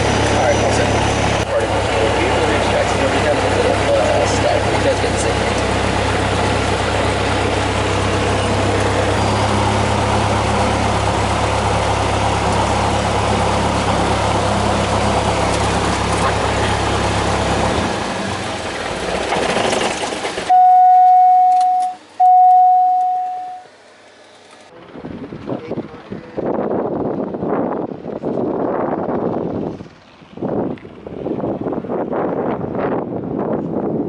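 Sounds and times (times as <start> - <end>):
propeller aircraft engine drone: 0.0 - 34.0
loud steady beeps: 20.5 - 23.7.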